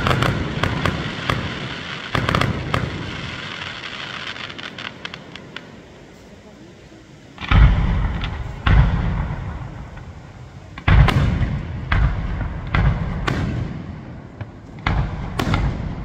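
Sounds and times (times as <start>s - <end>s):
firework shells bursting: 0.0s - 6.3s.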